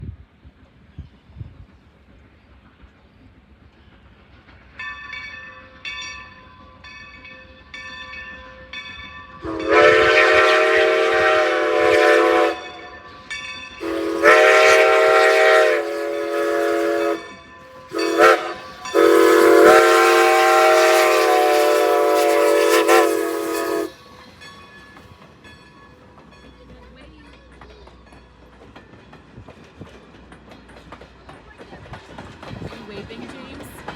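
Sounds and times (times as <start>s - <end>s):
steam locomotive chime whistle: 4.8s - 26.0s.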